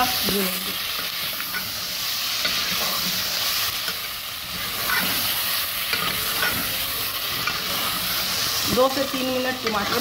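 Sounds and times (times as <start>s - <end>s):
food sizzling in hot oil: 0.0s - 10.0s
steel spoon scraping a pot: 2.4s - 8.5s.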